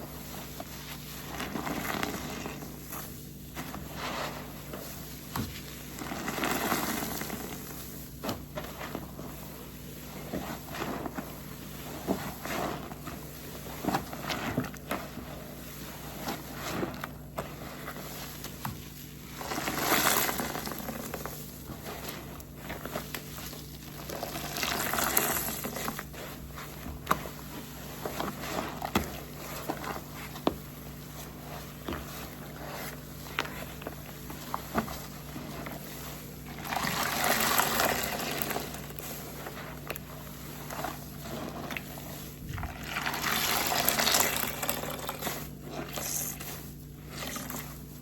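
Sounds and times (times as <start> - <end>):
sponge foam squelching: 0.0 - 48.0
sponge squishes and clicks: 10.1 - 48.0.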